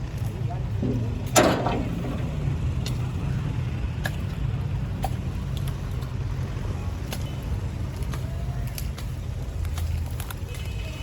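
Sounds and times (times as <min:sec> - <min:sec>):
engine running rumble: 0:00.0 - 0:10.5.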